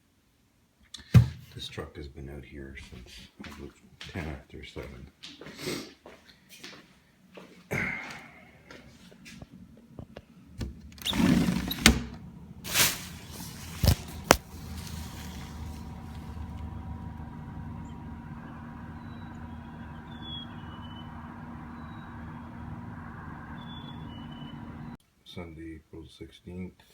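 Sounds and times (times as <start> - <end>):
truck engine idling: 12.3 - 25.0.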